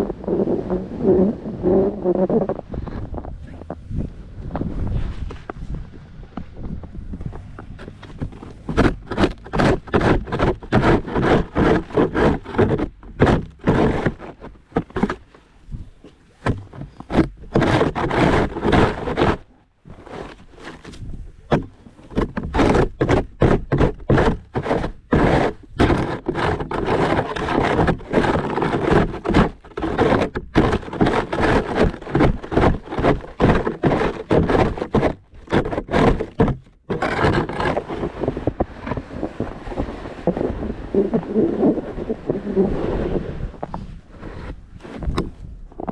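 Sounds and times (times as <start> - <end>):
snow shovel scraping driveway: 4.6 - 5.8, 7.3 - 45.9.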